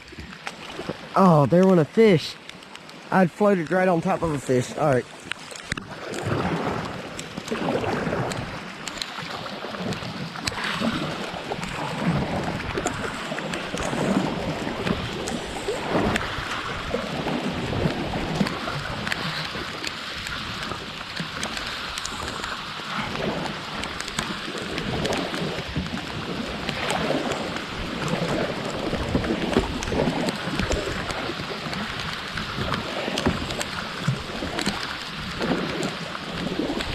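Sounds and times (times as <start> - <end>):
raindrop ticks: 0.0 - 16.6, 17.2 - 36.9
paddle strokes splashing water: 0.0 - 36.9
heavy rain hiss: 3.0 - 5.2.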